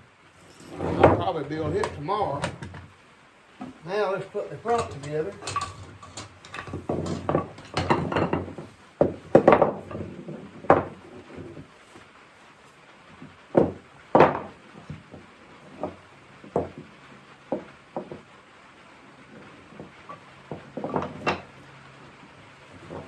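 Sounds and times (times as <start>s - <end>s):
wooden knocks: 0.7s - 2.9s, 4.7s - 11.6s, 13.5s - 16.9s, 17.5s - 18.3s, 19.8s - 21.5s.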